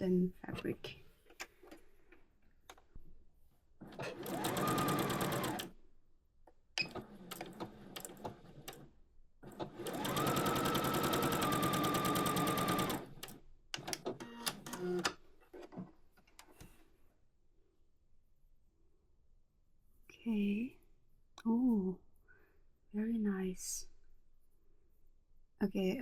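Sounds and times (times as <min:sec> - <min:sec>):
sewing machine stitching: 0:03.8 - 0:05.7, 0:06.8 - 0:15.1.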